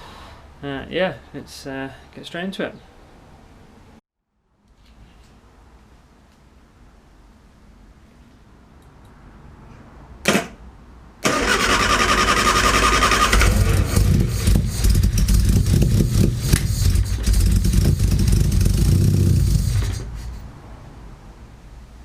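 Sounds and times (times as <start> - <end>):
starter motor cranking: 11.2 - 20.4
car engine running: 12.3 - 20.4.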